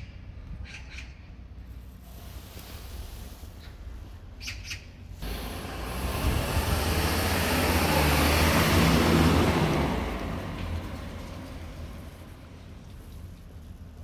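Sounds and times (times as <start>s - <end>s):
vehicle passing by: 5.2s - 13.1s.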